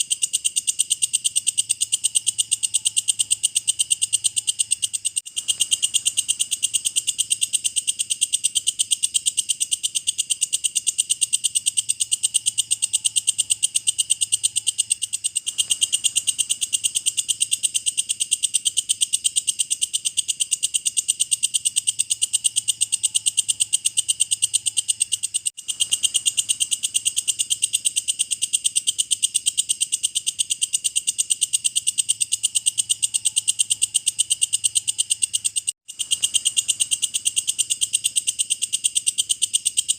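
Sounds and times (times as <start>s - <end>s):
bush cricket trilling: 0.0s - 39.9s.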